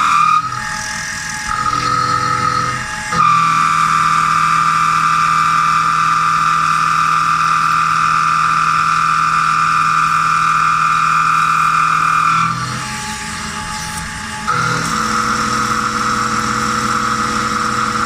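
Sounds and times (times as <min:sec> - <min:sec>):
low machine hum: 0:00.0 - 0:04.4, 0:12.5 - 0:18.0
machine tool high whine: 0:00.0 - 0:18.0.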